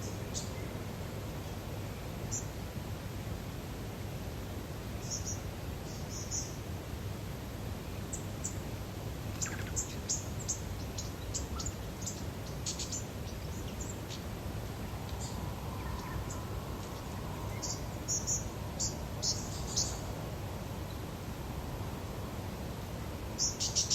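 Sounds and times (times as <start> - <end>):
small birds chirping: 9.4 - 14.3, 15.0 - 20.1, 23.4 - 23.9.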